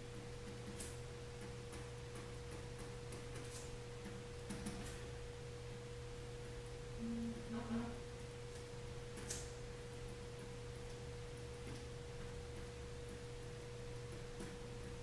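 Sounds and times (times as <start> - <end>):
electrical hum: 0.0 - 15.0
mid-pitched whine: 3.7 - 15.0.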